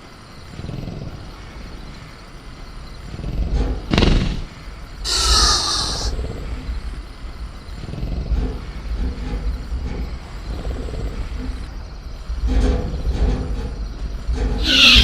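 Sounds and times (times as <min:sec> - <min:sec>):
deep steady rumble: 0:00.3 - 0:15.0
creature growling: 0:05.1 - 0:06.2, 0:14.6 - 0:15.0
creature hissing and screeching: 0:05.1 - 0:06.2, 0:14.6 - 0:15.0.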